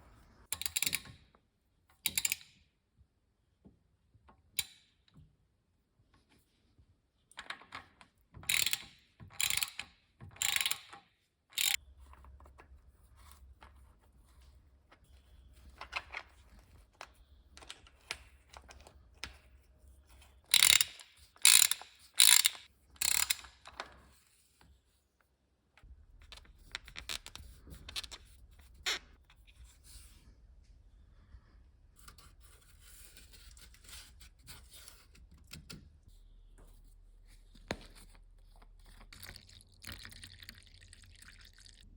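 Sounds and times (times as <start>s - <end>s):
ratchet wrench clicking: 8.5s - 9.8s, 10.4s - 10.9s, 11.6s - 11.8s, 20.5s - 23.6s.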